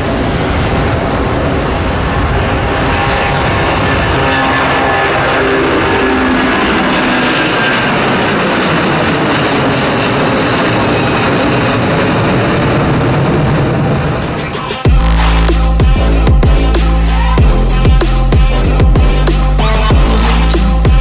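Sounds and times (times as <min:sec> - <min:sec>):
jet engines roaring: 0:00.0 - 0:21.0
background music: 0:14.2 - 0:21.0.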